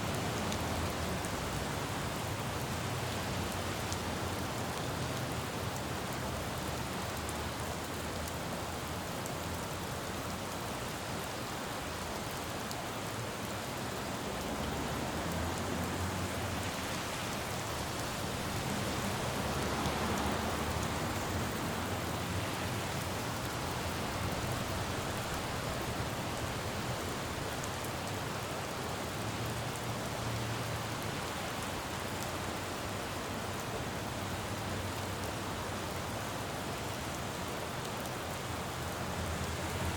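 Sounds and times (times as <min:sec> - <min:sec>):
rain falling on a road: 0:00.0 - 0:39.9
passing traffic rumble: 0:14.2 - 0:27.7.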